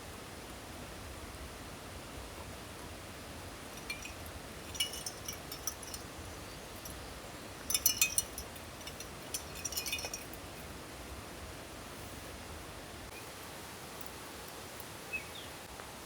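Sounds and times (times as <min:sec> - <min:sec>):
steady hiss of water: 0:00.0 - 0:16.0
small hard items clinking: 0:03.7 - 0:10.7.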